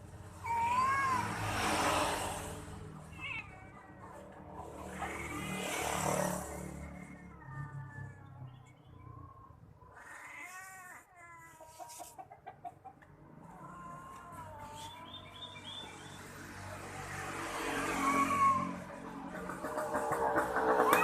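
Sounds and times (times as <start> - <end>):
cats yowling: 0.4 - 1.8, 3.0 - 8.3, 9.8 - 12.2, 13.4 - 15.3, 17.5 - 19.2, 20.8 - 21.0.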